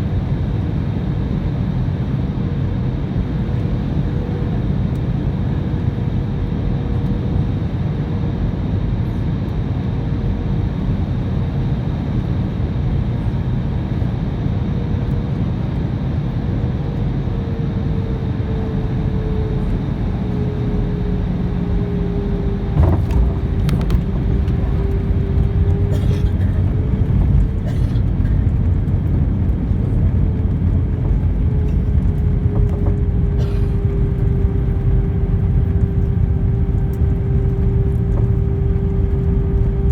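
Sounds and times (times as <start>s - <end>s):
aircraft engine rumble: 0.0s - 39.9s
wheels touching down thump: 22.7s - 26.6s
small rattles: 22.8s - 26.6s.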